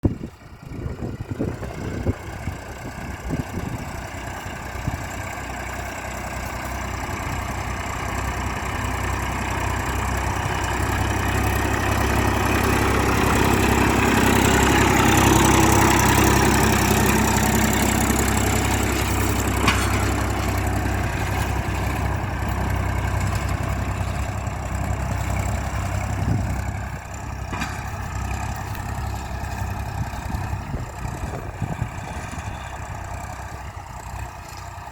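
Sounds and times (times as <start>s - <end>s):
tractor diesel engine: 0.0s - 34.9s.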